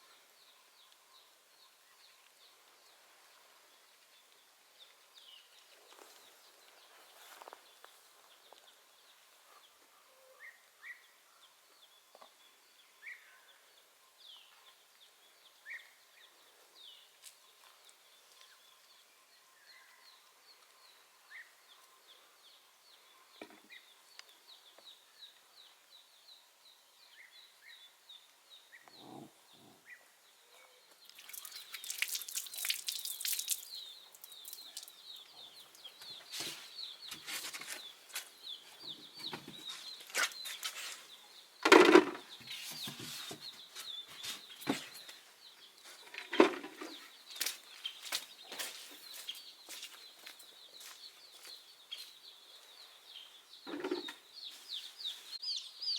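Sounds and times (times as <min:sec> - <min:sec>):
birds chirping: 0:00.0 - 0:55.9
sharp knocks and clatters: 0:41.6 - 0:42.2, 0:53.7 - 0:54.2.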